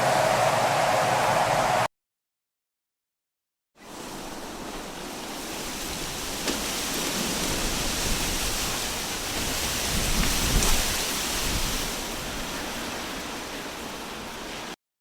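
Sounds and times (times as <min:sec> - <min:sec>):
wind rushing: 0:00.0 - 0:01.9.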